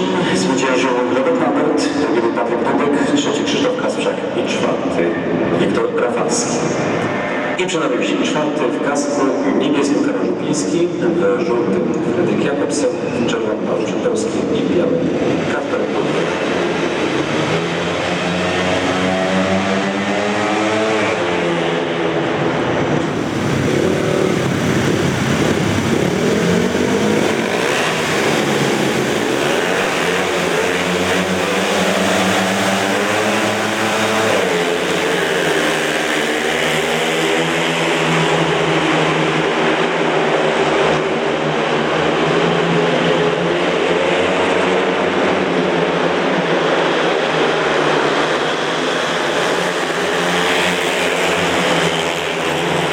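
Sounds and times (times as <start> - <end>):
motorcycles racing: 0.0 - 52.9.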